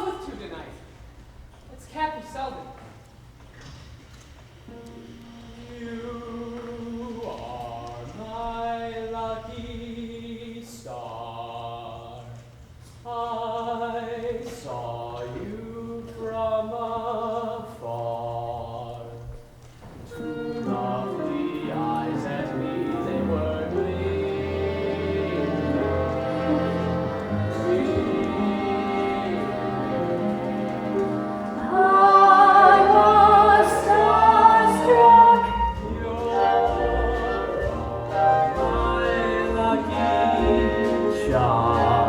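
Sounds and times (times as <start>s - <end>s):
quiet instrumental accompaniment: 19.4s - 42.0s.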